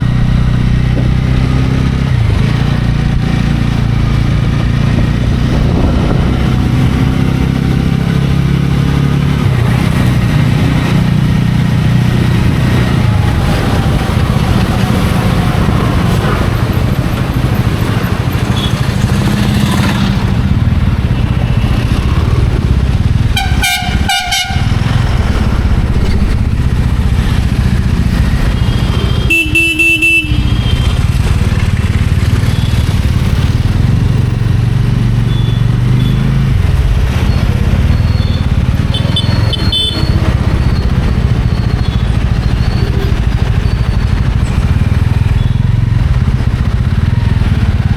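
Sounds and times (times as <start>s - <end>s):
motorcycle engine running: 0.0s - 47.9s
road and wind noise: 0.0s - 47.9s
vehicle horn honking: 23.4s - 24.9s, 28.6s - 31.0s, 38.2s - 40.2s.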